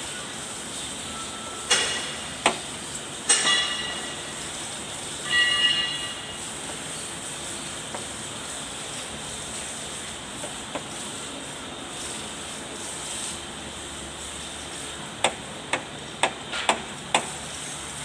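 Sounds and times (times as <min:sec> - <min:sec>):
steady hiss: 0:00.0 - 0:18.0
metal knocks and clangs: 0:03.3 - 0:04.2.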